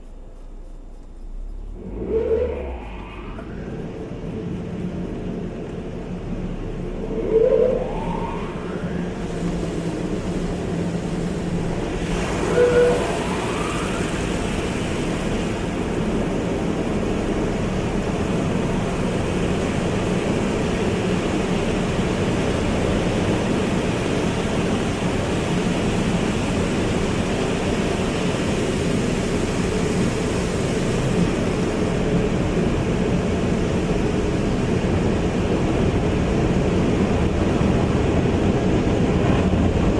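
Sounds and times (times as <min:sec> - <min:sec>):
short rising whines: 0:00.0 - 0:16.0
low machinery hum: 0:00.0 - 0:39.9.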